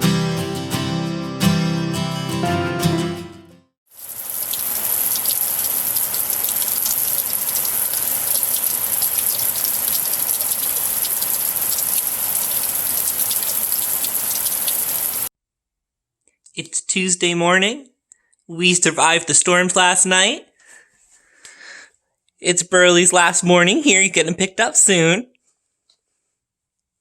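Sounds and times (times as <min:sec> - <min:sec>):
acoustic guitar music: 0:00.0 - 0:03.7
rain falling: 0:04.0 - 0:15.3.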